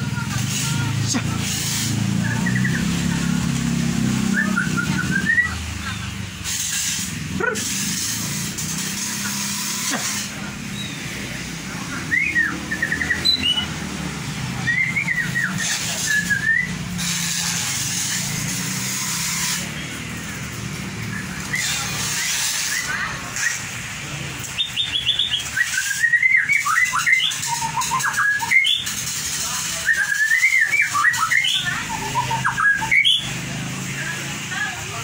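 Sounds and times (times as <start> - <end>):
songbird whistling and chirping: 2.2 - 3.1, 4.2 - 5.7, 11.9 - 13.8, 14.6 - 16.9, 24.6 - 29.0, 29.7 - 33.4.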